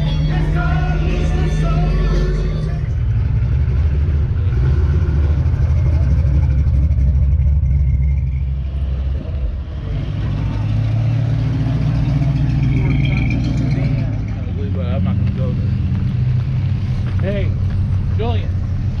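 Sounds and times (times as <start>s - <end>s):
music: 0.0s - 3.0s
car engine rumbling: 0.0s - 19.0s.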